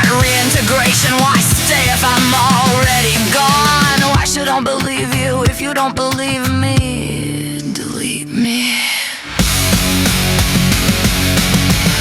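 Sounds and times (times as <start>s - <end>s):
fast drumming: 0.0s - 7.0s, 9.4s - 12.0s
distorted guitars: 0.0s - 8.4s, 9.2s - 12.0s.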